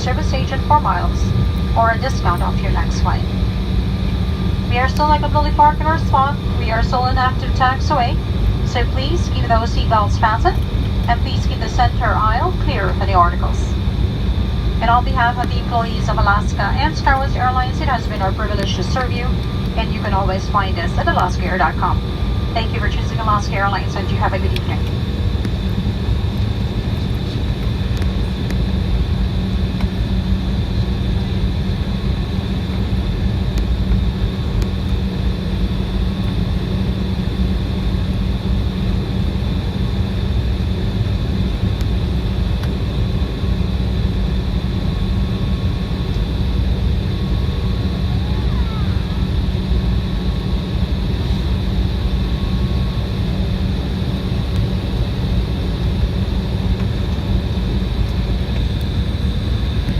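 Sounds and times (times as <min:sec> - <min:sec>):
low rumble: 0:00.0 - 0:39.1
jet engines humming: 0:00.0 - 0:59.9.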